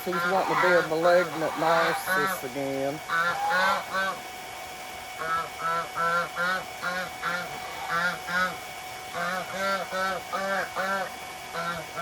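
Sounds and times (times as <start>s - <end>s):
geese honking: 0.0s - 2.5s, 3.1s - 4.2s, 5.2s - 12.0s.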